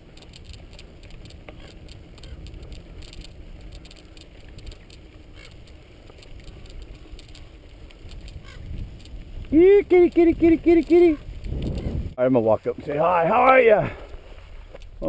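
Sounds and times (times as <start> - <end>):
bike clicks and rattles: 0.0 - 12.2
wind rumble on microphone: 0.0 - 13.0.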